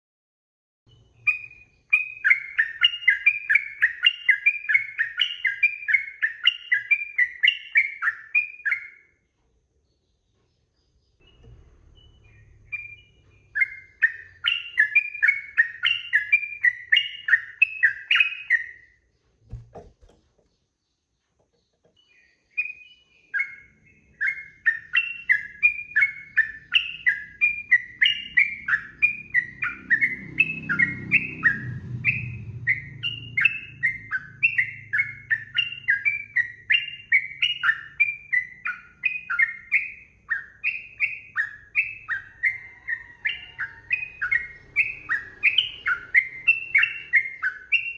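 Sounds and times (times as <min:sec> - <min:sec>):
bird singing whistled notes: 0:00.9 - 0:09.2, 0:10.0 - 0:19.8, 0:21.6 - 0:47.9
soft knock: 0:19.5 - 0:20.6.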